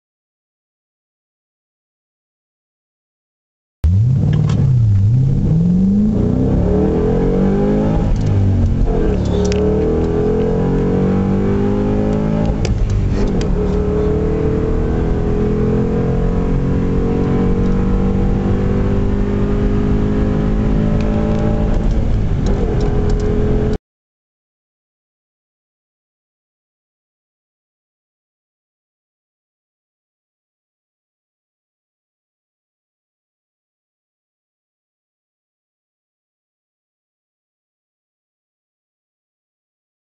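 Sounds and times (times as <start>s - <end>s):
car engine accelerating hard: 3.8s - 23.8s.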